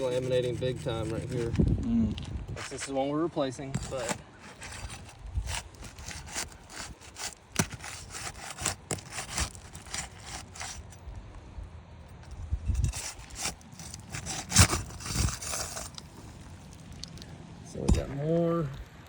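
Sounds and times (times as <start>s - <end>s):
roof shingles scraping: 0.0s - 1.6s, 2.5s - 11.0s, 12.7s - 16.9s.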